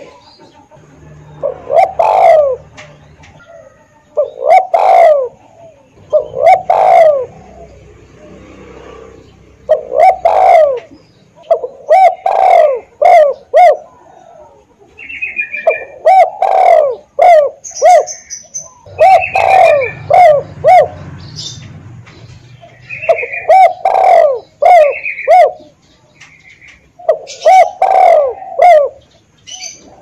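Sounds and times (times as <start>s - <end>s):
dove cooing: 0.0s - 21.6s, 22.5s - 30.0s
small birds chirping: 0.0s - 30.0s.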